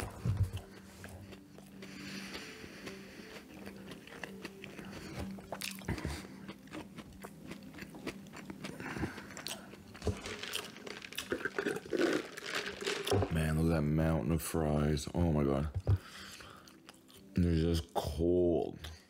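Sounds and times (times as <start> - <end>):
person chewing and biting food: 0.0 - 13.2.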